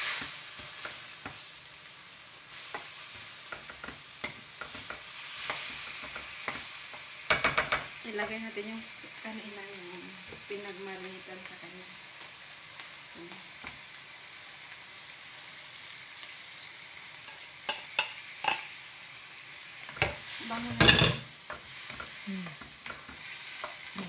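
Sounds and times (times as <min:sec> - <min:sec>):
chicken sizzling in hot oil: 0:00.0 - 0:24.0
spatula stirring: 0:02.5 - 0:07.9, 0:19.8 - 0:24.0
spatula knocking against pan: 0:07.3 - 0:07.9.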